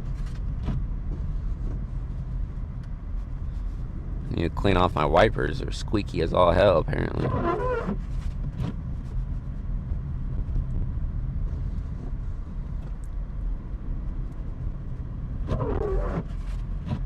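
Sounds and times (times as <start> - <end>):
car engine and tyre rumble: 0.0 - 17.0
windshield wipers squeaking: 7.2 - 8.8, 15.4 - 17.0.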